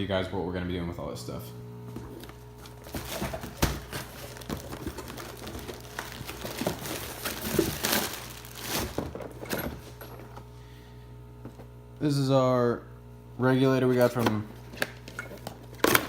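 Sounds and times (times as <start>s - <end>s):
electrical hum: 0.0s - 16.0s
cardboard rustling: 1.9s - 10.5s
packing material crinkling: 2.0s - 10.3s.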